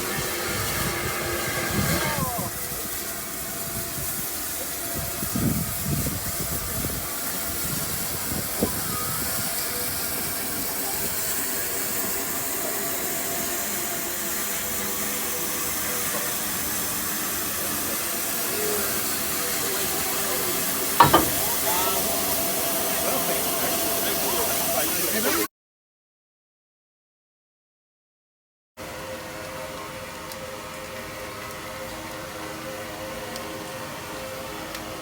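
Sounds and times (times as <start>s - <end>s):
steam hissing: 0.0s - 25.5s.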